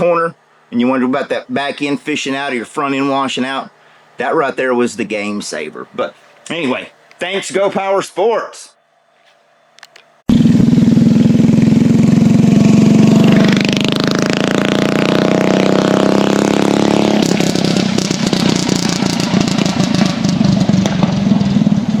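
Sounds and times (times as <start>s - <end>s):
mini bike engine running hard: 10.3s - 22.0s.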